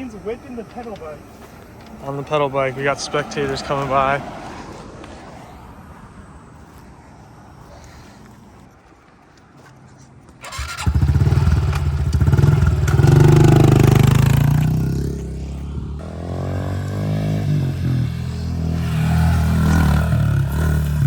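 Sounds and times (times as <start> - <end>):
small motorbike engine revving: 10.4 - 21.0.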